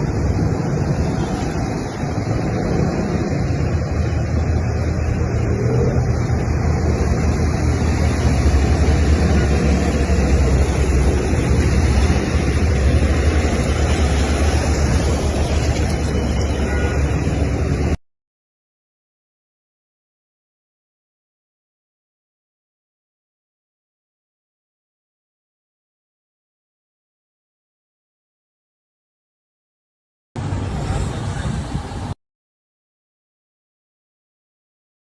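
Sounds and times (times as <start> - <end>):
floodwater rushing: 0.0 - 18.0, 30.4 - 32.2
vehicle engine humming: 0.0 - 18.0, 30.4 - 32.2
wind on microphone: 0.0 - 18.0, 30.4 - 32.2.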